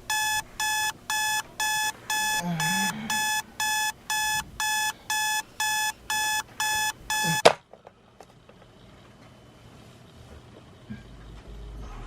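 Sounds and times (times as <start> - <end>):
alarm clock beeping: 0.0 - 7.5.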